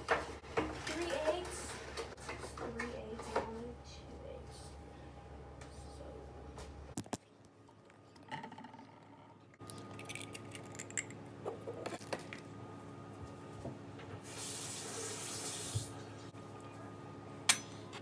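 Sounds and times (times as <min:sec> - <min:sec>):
kitchen tap running: 0:14.2 - 0:16.0.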